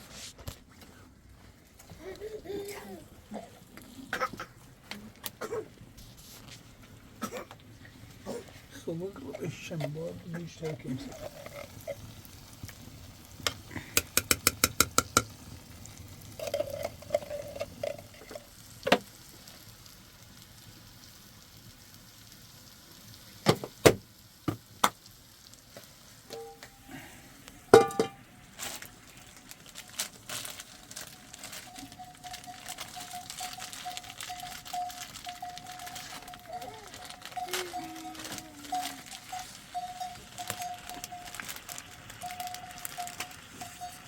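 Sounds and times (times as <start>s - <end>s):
pots and lids clanking: 9.2s - 12.1s, 13.4s - 15.3s, 16.4s - 19.1s, 26.3s - 27.0s, 27.7s - 28.3s, 30.9s - 44.0s
faint steady tone: 26.3s - 28.3s.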